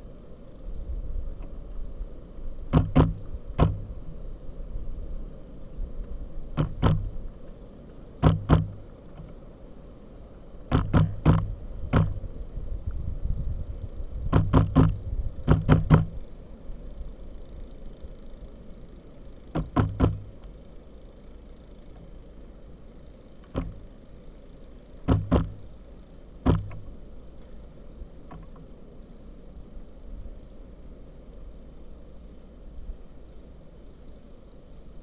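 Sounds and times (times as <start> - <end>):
woodpecker pecking: 2.7 - 3.9, 6.6 - 7.2, 8.2 - 9.4, 10.7 - 12.2, 14.2 - 16.2, 19.4 - 20.6, 23.4 - 24.4, 25.0 - 27.0.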